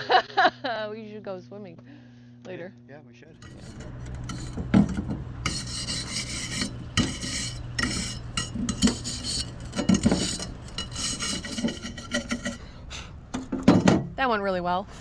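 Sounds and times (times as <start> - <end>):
clinks and knocks of hard objects: 3.4 - 5.6, 6.8 - 12.6, 13.3 - 14.2
scraping and rubbing: 3.4 - 12.6.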